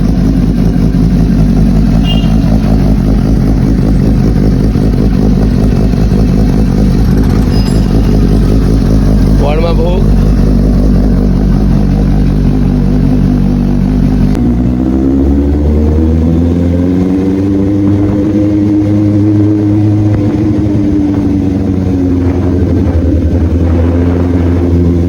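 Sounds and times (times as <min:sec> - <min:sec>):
motorcycle engine idling: 0:00.0 - 0:14.4
engine revving: 0:00.0 - 0:25.0.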